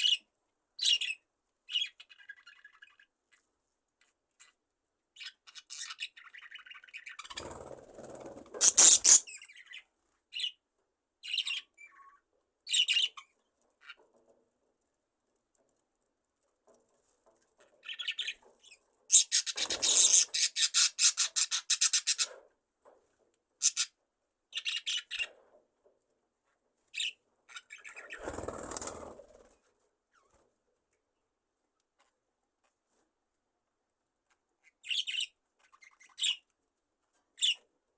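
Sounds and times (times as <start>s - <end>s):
budgerigars chirping: 8.6s - 9.8s, 19.1s - 22.4s, 23.6s - 23.9s, 24.5s - 25.3s, 34.8s - 36.4s.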